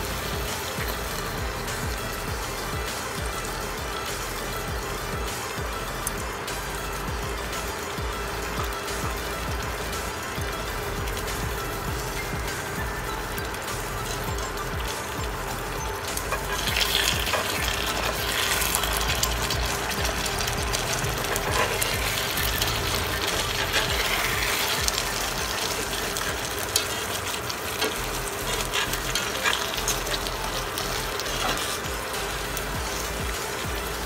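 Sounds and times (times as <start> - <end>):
glaze sizzling and bubbling: 0.0 - 34.0.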